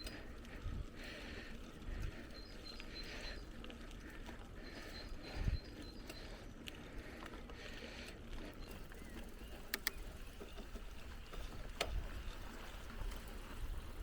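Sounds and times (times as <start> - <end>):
bike rattling clicks: 0.0 - 0.6, 5.9 - 12.4
bicycle tyres rolling on ground: 0.0 - 14.0.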